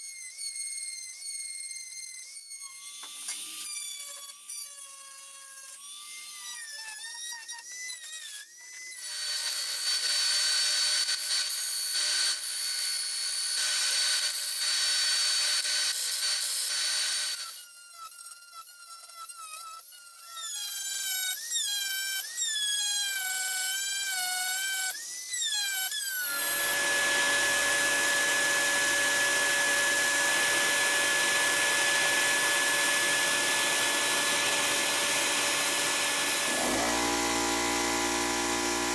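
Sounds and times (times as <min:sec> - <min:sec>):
electric power tool motor whine: 0:25.4 - 0:38.9
rough grinding noise: 0:26.3 - 0:38.9.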